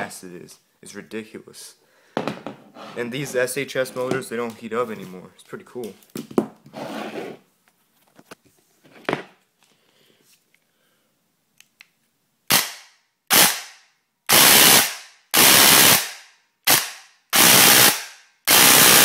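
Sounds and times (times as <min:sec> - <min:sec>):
airsoft gun firing bursts: 0:12.5 - 0:13.7, 0:14.3 - 0:19.0.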